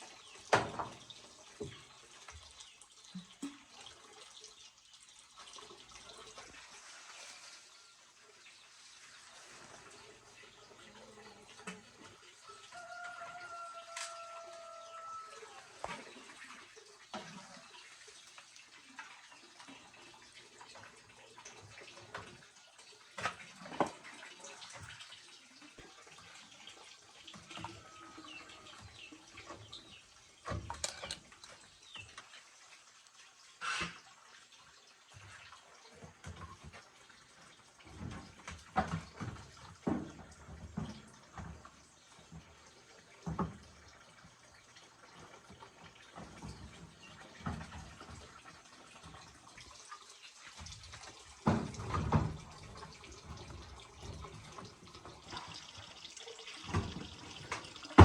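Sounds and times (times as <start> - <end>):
small knocks and clunks: 0.4 - 3.7, 23.1 - 24.1, 27.3 - 32.3, 35.1 - 37.0, 37.8 - 42.6, 43.2 - 44.4, 45.1 - 49.4, 50.6 - 55.6.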